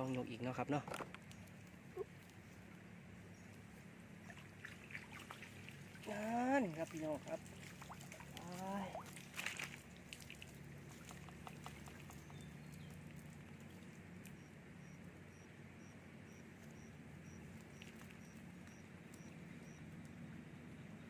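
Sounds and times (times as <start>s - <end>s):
steady low hum: 0.0s - 21.0s
water splashing and dripping: 4.2s - 14.0s.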